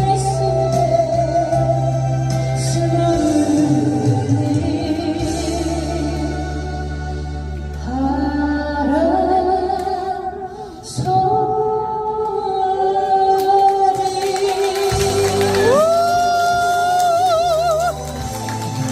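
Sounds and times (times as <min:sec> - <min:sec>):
woman singing: 0:00.0 - 0:07.0, 0:07.8 - 0:18.1
musical accompaniment: 0:13.8 - 0:18.9.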